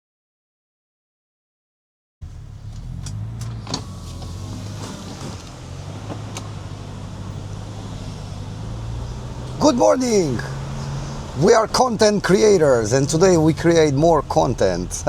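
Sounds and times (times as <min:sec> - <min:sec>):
car cabin rumble: 0:02.2 - 0:15.0.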